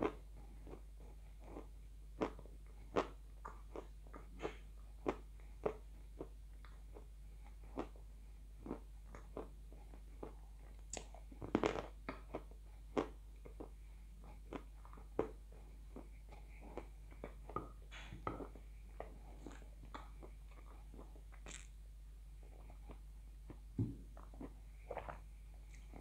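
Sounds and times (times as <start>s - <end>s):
wet chewing clicks: 14.4s - 21.7s
chalk crunching in mouth: 19.4s - 21.8s.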